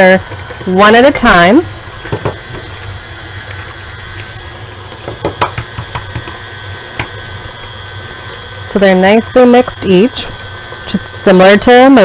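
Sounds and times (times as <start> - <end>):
stand mixer motor running: 0.0 - 12.0
sharp clicks and taps: 5.1 - 6.4.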